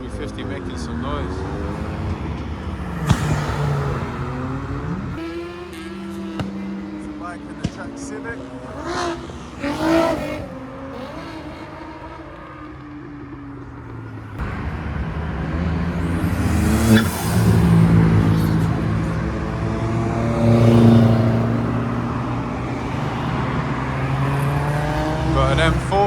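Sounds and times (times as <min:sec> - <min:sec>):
car engines accelerating: 0:00.0 - 0:26.0.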